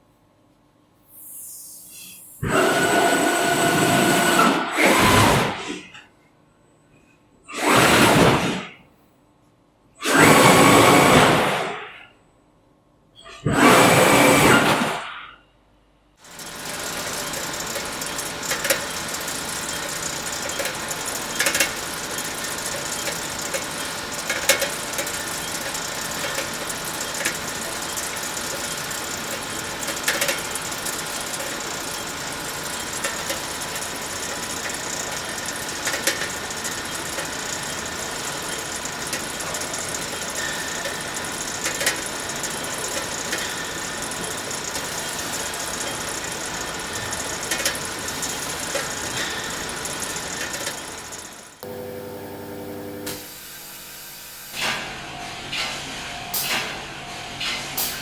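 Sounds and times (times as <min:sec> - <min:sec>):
factory machinery clatter: 0:10.0 - 0:12.0, 0:16.2 - 0:51.8, 0:53.0 - 0:58.0
faint steady hum: 0:51.6 - 0:53.4.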